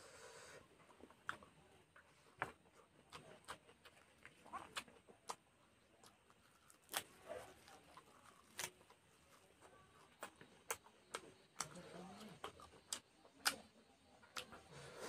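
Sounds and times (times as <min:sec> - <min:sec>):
person chewing leafy greens: 0:00.5 - 0:15.0.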